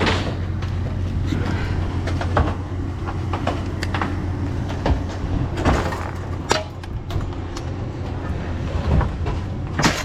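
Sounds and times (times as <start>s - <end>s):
vehicle engine and road rumble: 0.0s - 10.0s
sharp knocks and rattles: 2.0s - 7.8s.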